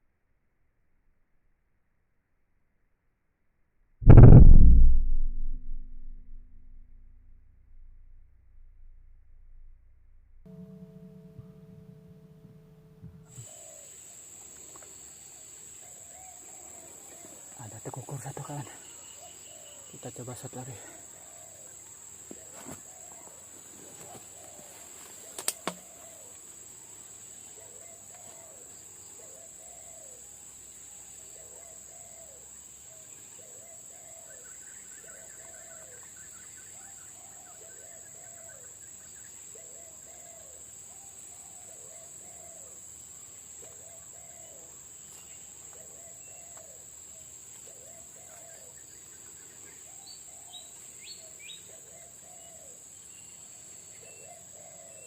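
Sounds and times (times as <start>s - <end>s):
air rifle shot: 4.1s - 7.1s.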